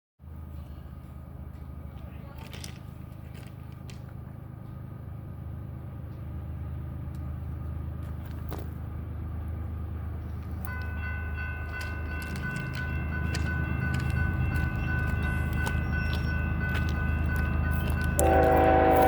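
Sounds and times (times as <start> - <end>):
diesel locomotive engine rumble: 0.2 - 19.0
locomotive air horn chord: 18.2 - 19.0.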